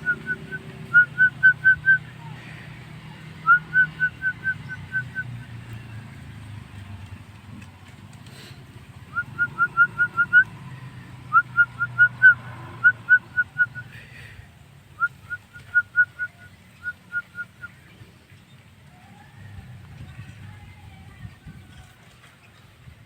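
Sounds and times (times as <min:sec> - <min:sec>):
bird whistling rising notes: 0:00.0 - 0:02.1, 0:03.4 - 0:05.6, 0:09.1 - 0:10.6, 0:11.3 - 0:13.9, 0:15.0 - 0:17.8
low steady rumble: 0:00.0 - 0:23.0.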